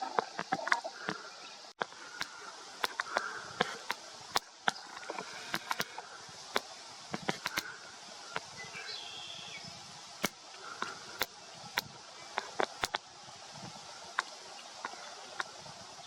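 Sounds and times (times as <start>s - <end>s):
irregular sharp clicks: 2.2s - 4.8s, 5.5s - 6.0s, 6.6s - 7.7s, 10.2s - 11.9s, 12.6s - 13.0s.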